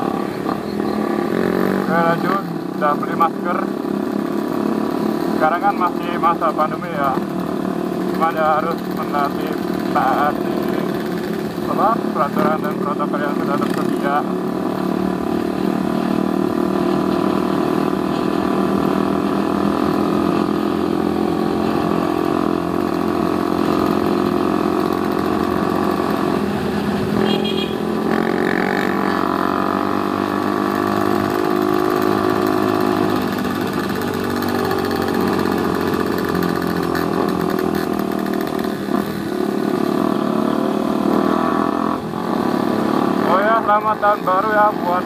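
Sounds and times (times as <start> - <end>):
motorcycle engine cruising: 0.0 - 45.0.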